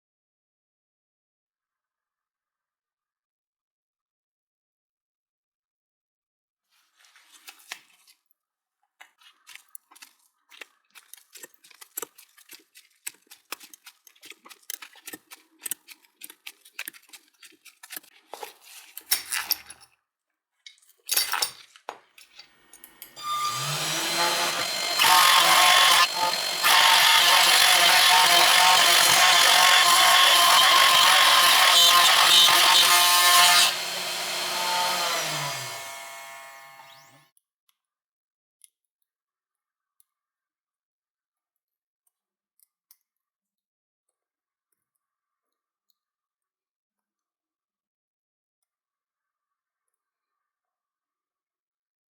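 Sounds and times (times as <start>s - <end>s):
hand tools clicking and scraping: 11.0s - 19.8s, 22.2s - 37.2s
small power tool running: 23.1s - 37.2s.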